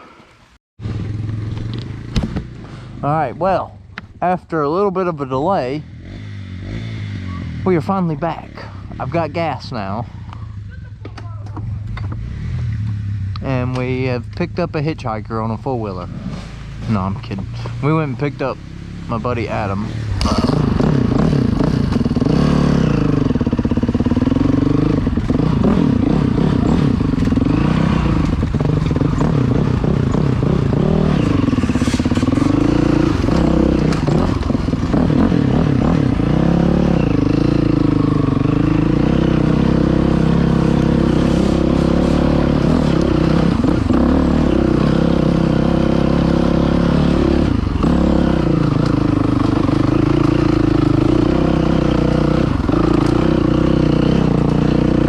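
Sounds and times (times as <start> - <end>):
dirt bike engine revving: 0.8 - 3.8, 4.7 - 10.7, 11.7 - 55.0
clatter: 23.2 - 36.3, 47.4 - 55.0.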